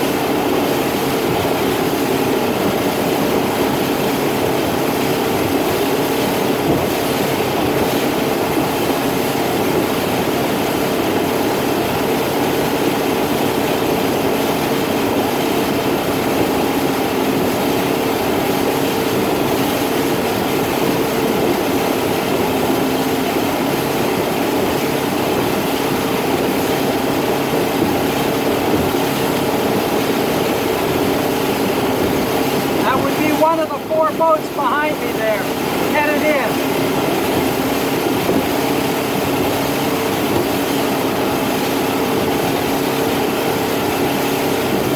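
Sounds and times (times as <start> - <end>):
motorboat engine running: 0.0 - 44.9
rush of noise: 31.8 - 37.4.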